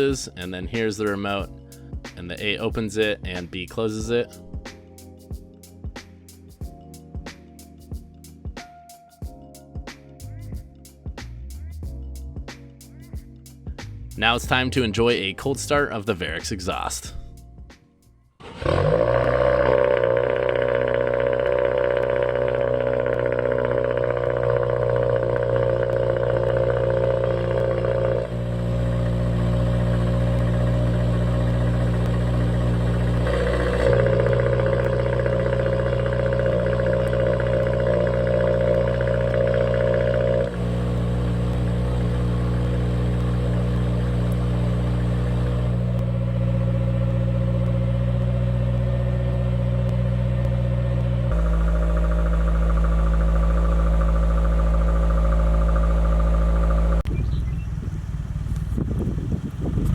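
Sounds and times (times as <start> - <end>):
exhaust rumble: 10.2 - 59.9
car engine starting and idling: 18.2 - 59.9.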